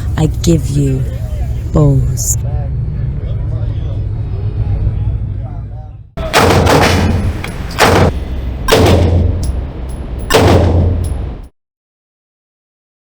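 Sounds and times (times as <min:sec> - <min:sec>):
steady low rumble: 0:00.0 - 0:11.5
loud ringing bangs: 0:06.2 - 0:11.5.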